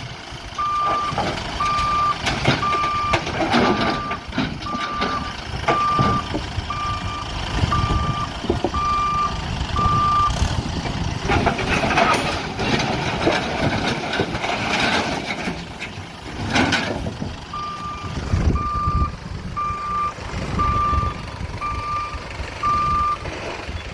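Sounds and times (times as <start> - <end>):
diesel engine running: 0.0 - 23.9
reversing alarm beeping: 0.6 - 10.4, 17.5 - 23.3.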